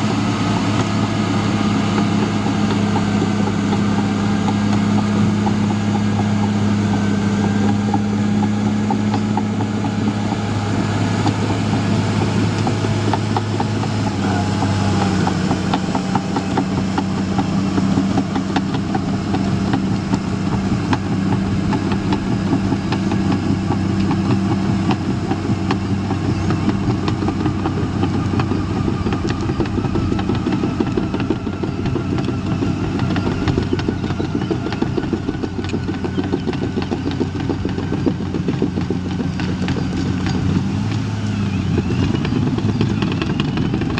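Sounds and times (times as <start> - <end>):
dozer diesel engine running: 0.0 - 43.9
rapid clatter of clicks: 1.9 - 43.9.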